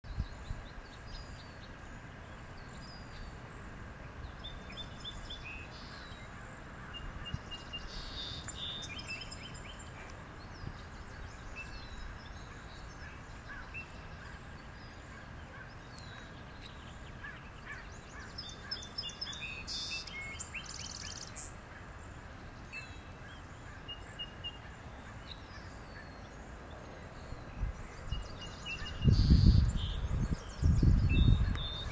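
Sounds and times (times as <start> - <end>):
outdoor background noise: 0.0 - 31.9
high bird chirps: 28.2 - 31.9.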